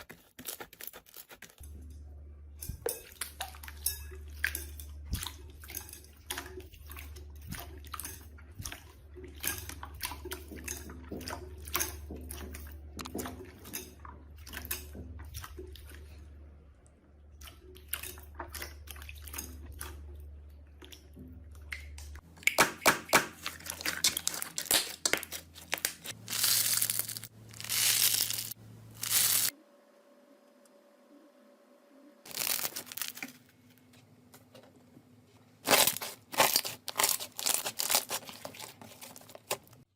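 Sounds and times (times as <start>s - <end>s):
slime crunching squeezes: 23.4s - 29.5s, 35.6s - 39.7s.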